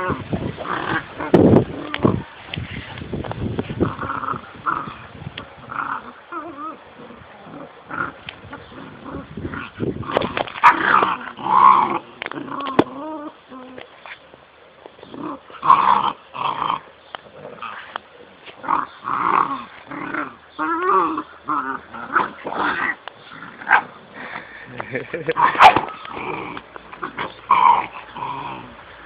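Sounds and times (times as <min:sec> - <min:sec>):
puppies growling: 0:00.0 - 0:02.2, 0:03.6 - 0:13.9, 0:15.0 - 0:29.0
puppies yelping: 0:18.6 - 0:23.9.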